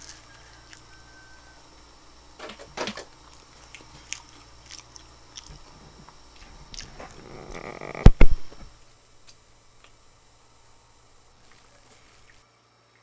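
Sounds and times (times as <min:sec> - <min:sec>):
chewing chicken wings: 0:00.0 - 0:01.6, 0:03.1 - 0:08.1
wet mouth clicks: 0:03.7 - 0:08.4.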